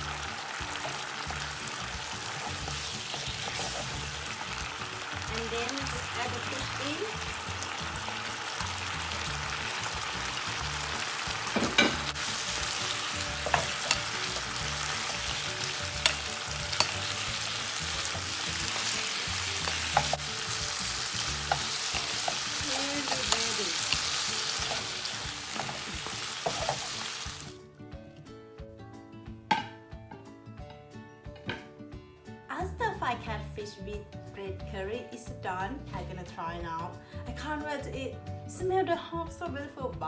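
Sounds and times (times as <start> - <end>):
fish sizzling in a frying pan: 0.0 - 27.5.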